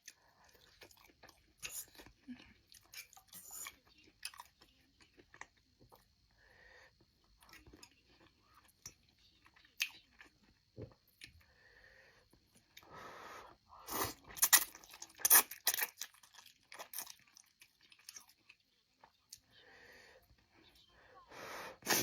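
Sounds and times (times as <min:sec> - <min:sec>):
person chewing crunchy food: 0:00.0 - 0:06.2, 0:13.9 - 0:19.4.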